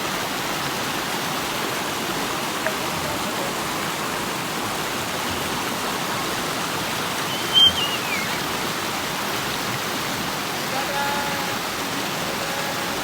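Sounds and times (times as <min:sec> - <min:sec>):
river water rushing: 0:00.0 - 0:13.0
high-pitched cry: 0:07.3 - 0:08.5.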